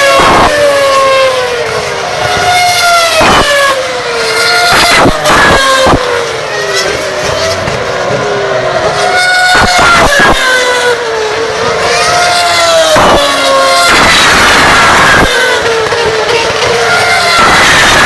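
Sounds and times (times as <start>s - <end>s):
racing car engines at high revs: 0.0s - 18.0s
sharp noise bursts: 3.1s - 6.2s, 12.9s - 18.0s.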